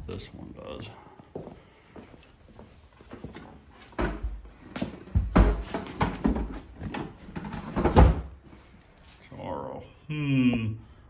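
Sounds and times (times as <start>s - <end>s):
objects knocking and thumping: 3.1s - 8.4s.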